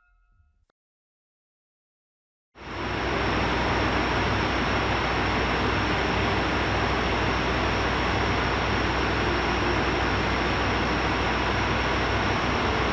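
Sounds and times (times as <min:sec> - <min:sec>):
diesel generator humming: 0:02.7 - 0:12.9.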